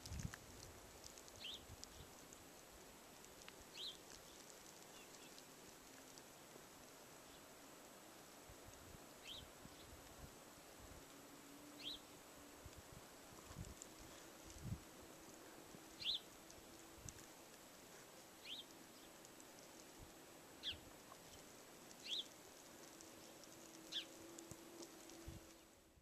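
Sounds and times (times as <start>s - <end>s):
outdoor background noise: 0.0s - 26.0s
bird chirping: 1.4s - 2.2s, 3.7s - 5.5s, 9.2s - 10.0s, 11.7s - 12.1s, 15.9s - 16.4s, 18.4s - 19.3s, 20.6s - 22.4s, 23.2s - 24.2s.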